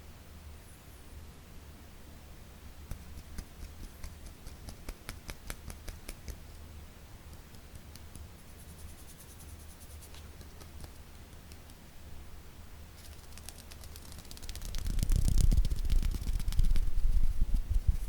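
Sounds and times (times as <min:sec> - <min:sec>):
low steady hum: 0:00.0 - 0:18.0
fingers tapping on object: 0:02.9 - 0:06.4, 0:07.3 - 0:08.3, 0:10.1 - 0:11.8.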